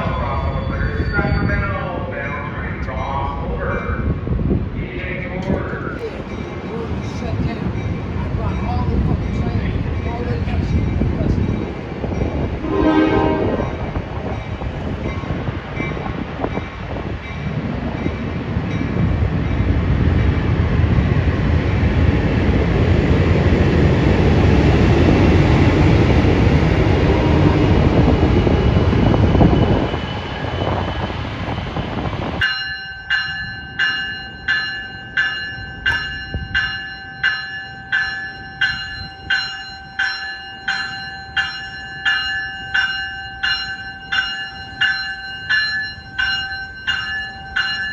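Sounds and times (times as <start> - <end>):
train passing on rails: 0.0 - 47.9
railroad bell ringing: 5.5 - 19.7, 32.4 - 47.9.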